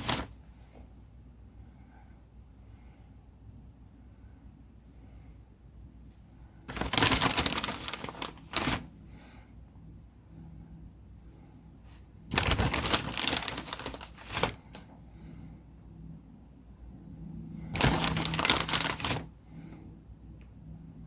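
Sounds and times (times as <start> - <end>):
soft breaths: 0.4 - 20.3
material crinkling by hand: 6.7 - 8.9, 12.3 - 14.9, 17.7 - 19.4.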